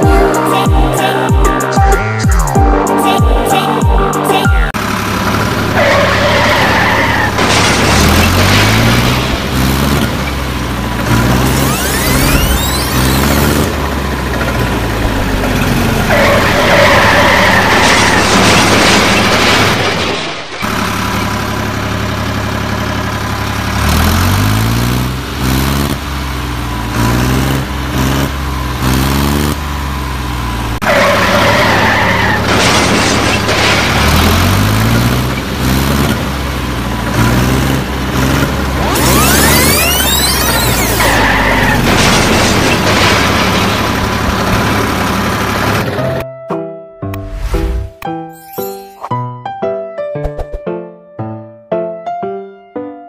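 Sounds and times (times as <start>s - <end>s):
engine revving: 4.7s - 20.0s, 20.6s - 46.2s
tyres screeching: 5.7s - 10.4s, 11.0s - 13.7s, 15.4s - 19.4s, 30.8s - 35.5s, 38.8s - 44.9s.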